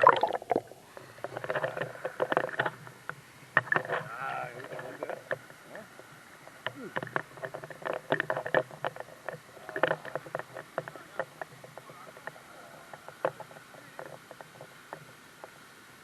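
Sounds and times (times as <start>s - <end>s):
water splashing in a stream: 0.0s - 0.7s
flowing water rushing: 0.0s - 16.0s.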